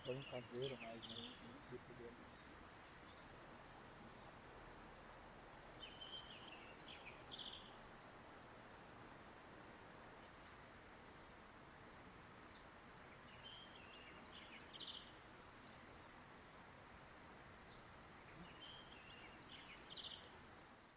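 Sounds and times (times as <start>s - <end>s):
bird chirps: 0.0s - 3.2s, 5.7s - 7.8s, 17.2s - 20.9s
faint steady hiss: 0.0s - 20.9s.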